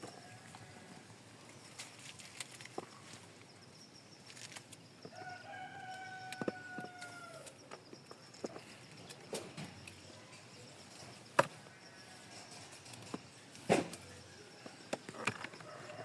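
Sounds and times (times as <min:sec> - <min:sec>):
rooster crowing: 0:05.1 - 0:07.6, 0:15.6 - 0:16.0.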